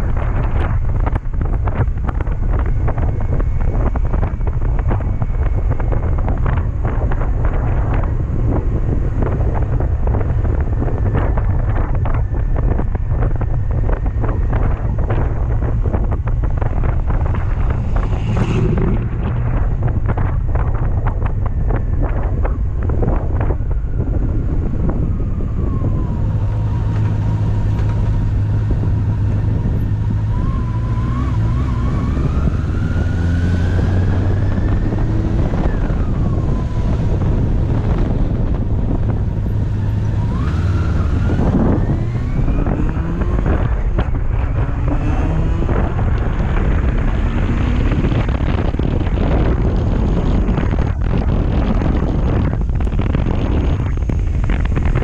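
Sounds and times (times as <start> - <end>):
motorcycle engine accelerating: 0.0 - 55.0
wind buffeting microphone: 0.0 - 55.0.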